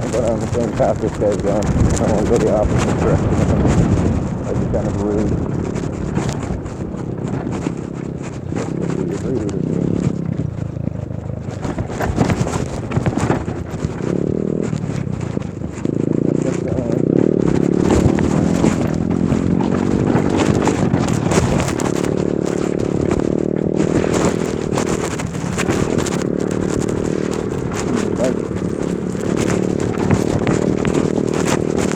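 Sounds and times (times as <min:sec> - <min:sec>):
bike rattling on rough ground: 0:00.0 - 0:31.9
wind on microphone: 0:00.0 - 0:31.9.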